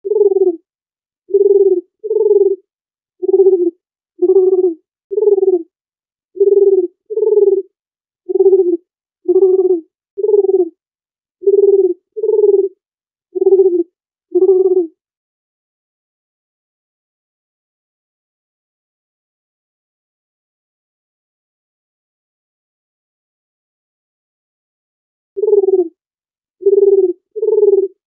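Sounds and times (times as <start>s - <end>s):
dove cooing: 0.0s - 0.6s, 1.3s - 2.6s, 3.2s - 5.7s, 6.4s - 7.7s, 8.3s - 10.7s, 11.4s - 12.8s, 13.4s - 14.9s, 25.4s - 25.9s, 26.6s - 28.0s.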